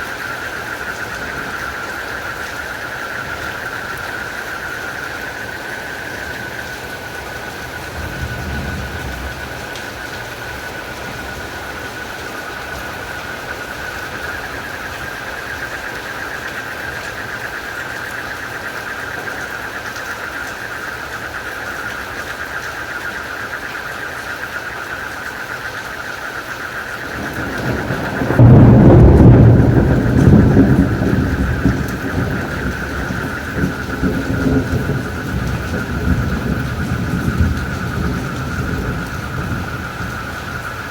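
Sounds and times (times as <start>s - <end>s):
thunder rumbling: 0.0s - 15.8s, 26.8s - 40.9s
crickets and frogs chorus: 0.0s - 40.9s
steady rain: 0.0s - 40.9s.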